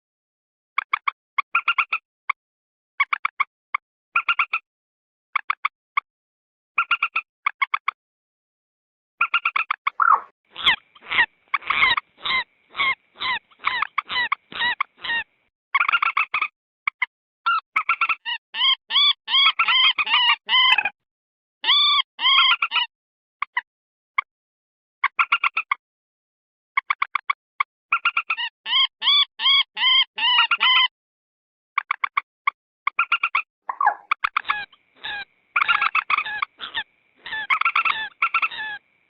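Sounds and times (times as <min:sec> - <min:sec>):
moorhen calling: 0:10.0 - 0:15.3, 0:33.1 - 0:38.8.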